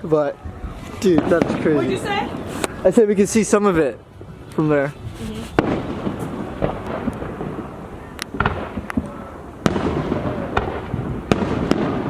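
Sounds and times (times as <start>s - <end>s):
fireworks booms and pops: 0.5s - 2.9s, 4.2s - 12.0s
low rumble and crackle: 4.1s - 12.0s.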